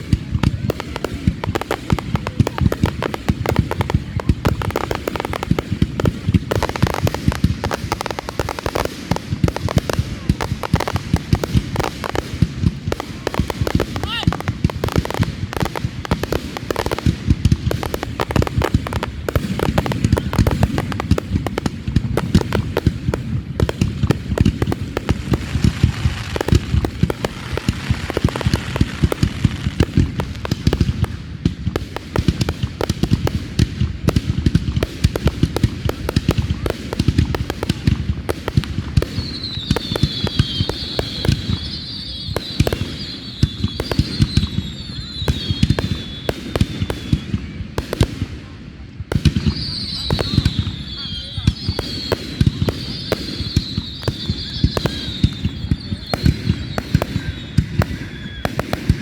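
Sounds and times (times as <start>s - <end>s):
fireworks bangs and crackles: 0.0s - 59.0s
high wavering whistle: 52.8s - 59.0s.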